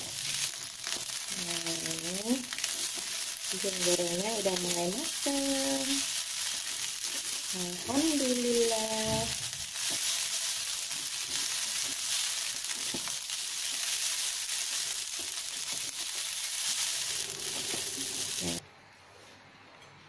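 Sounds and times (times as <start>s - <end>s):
noodles sizzling in a wok: 0.0s - 18.6s.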